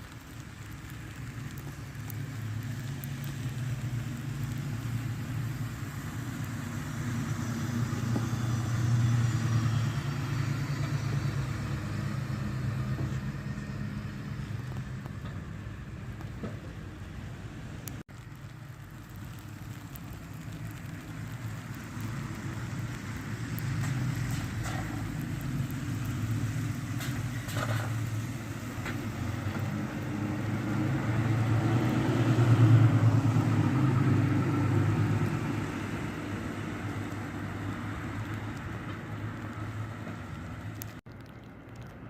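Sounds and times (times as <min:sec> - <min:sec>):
bus diesel engine passing: 0:02.5 - 0:17.8, 0:20.8 - 0:40.8.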